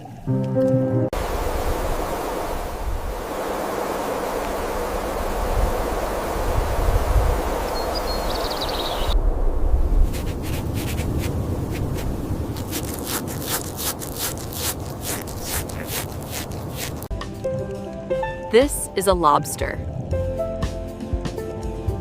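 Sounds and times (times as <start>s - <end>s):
rushing surf-like noise: 1.1s - 13.2s
clicks and scratchy scrapes: 10.1s - 17.1s.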